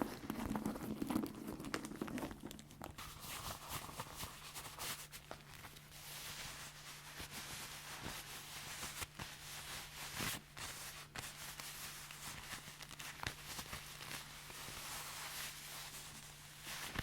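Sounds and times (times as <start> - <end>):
leather creaking and rustling: 0.0 - 4.3.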